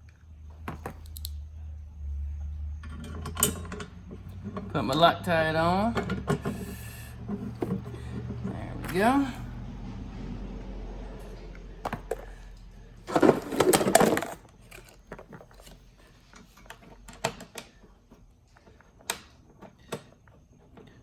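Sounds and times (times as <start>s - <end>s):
clinks of tool and metal parts: 2.8s - 4.7s.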